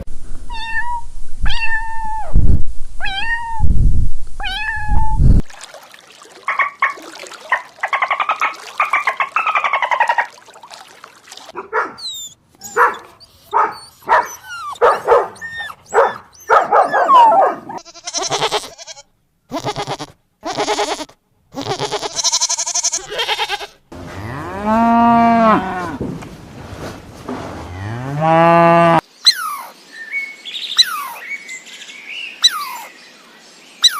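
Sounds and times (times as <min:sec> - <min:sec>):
cattle mooing: 0:24.0 - 0:26.0, 0:27.6 - 0:29.0.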